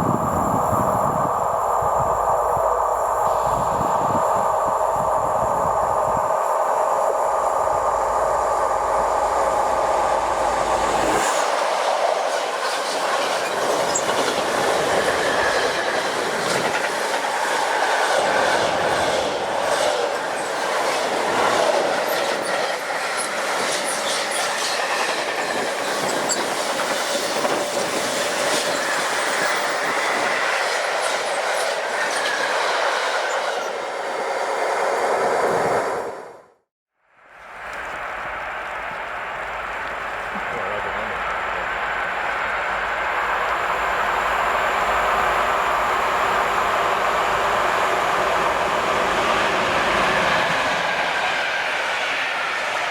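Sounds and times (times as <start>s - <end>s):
train passing: 0.0s - 52.9s
train whine: 0.0s - 52.9s
wheels clacking over rail joints: 9.5s - 33.9s.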